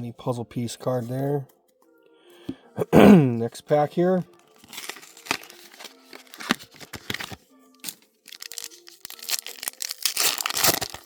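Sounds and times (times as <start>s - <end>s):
foil wrapper tearing and crinkling: 4.6s - 11.0s.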